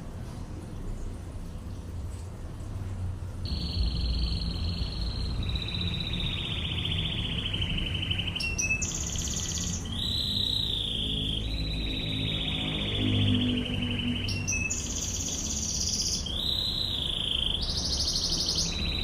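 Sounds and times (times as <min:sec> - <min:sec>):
low hum: 0:02.7 - 0:08.4
canary singing fast trills: 0:03.4 - 0:19.0.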